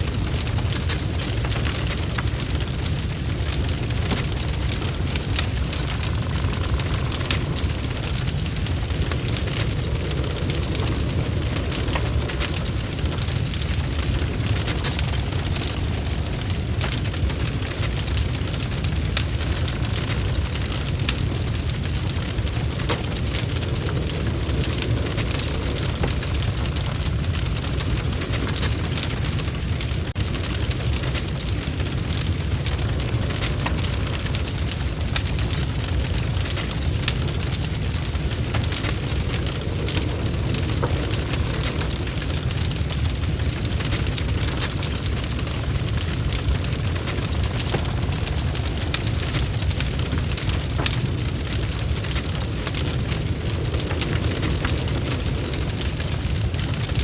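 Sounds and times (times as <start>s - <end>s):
bonfire popping and snapping: 0.0s - 57.0s
low roar of flames: 0.0s - 57.0s.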